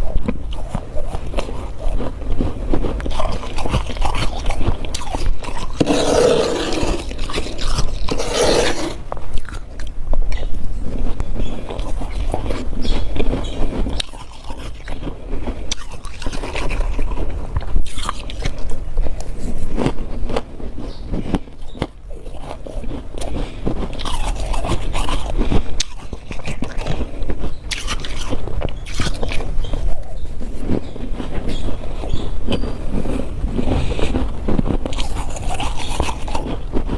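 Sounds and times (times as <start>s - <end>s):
crunching frost being chewed: 0.0s - 36.9s
scraping: 0.6s - 9.6s.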